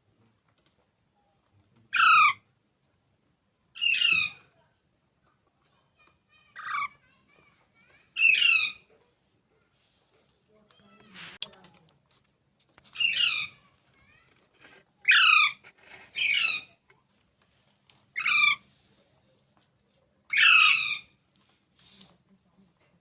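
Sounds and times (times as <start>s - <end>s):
parrot squawking: 2.0s - 2.4s, 3.8s - 4.4s, 6.6s - 6.9s, 8.2s - 8.8s, 13.0s - 13.6s, 15.0s - 16.8s, 18.2s - 18.6s, 20.3s - 21.1s.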